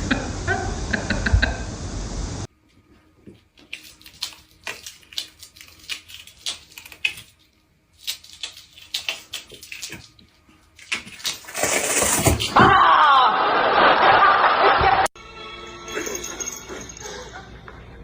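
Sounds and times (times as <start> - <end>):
water splashing and sloshing: 3.4 - 12.6.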